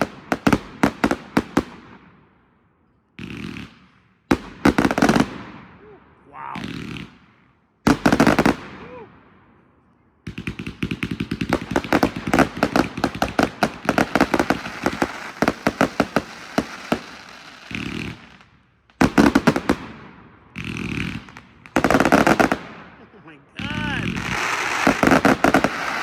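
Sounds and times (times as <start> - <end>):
firework cake bangs: 23.6 - 26.0.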